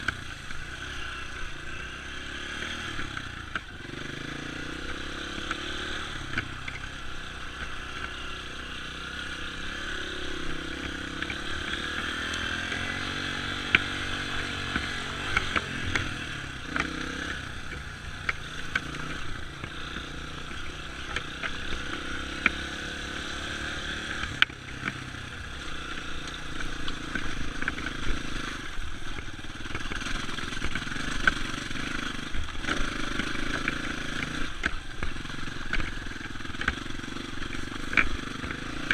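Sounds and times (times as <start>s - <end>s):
dirt bike engine: 0.0s - 38.9s
sharp clicks and knocks: 17.7s - 22.6s, 29.1s - 38.9s.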